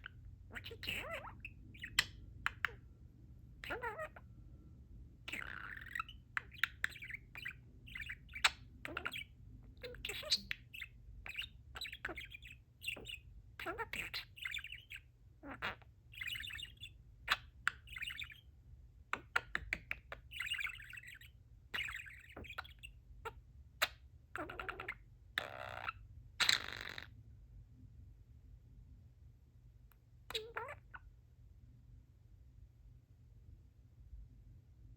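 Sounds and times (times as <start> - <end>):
budgerigar chirping and chattering: 0.0 - 2.8, 3.6 - 4.2, 5.3 - 18.5, 19.1 - 27.1, 30.3 - 31.0.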